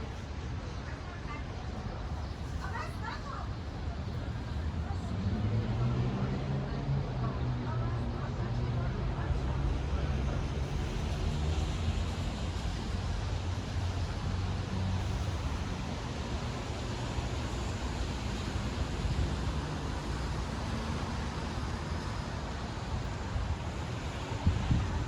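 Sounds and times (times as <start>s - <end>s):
passing road traffic: 0.0s - 25.0s
wind buffeting microphone: 23.1s - 25.0s.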